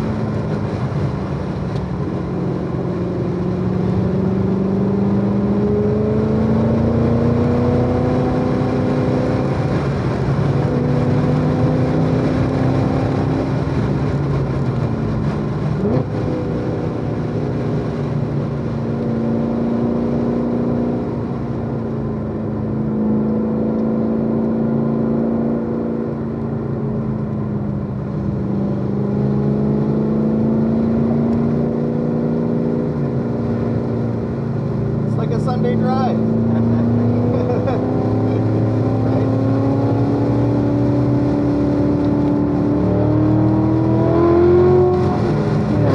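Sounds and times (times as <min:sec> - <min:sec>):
car engine running hard: 0:00.0 - 0:45.9.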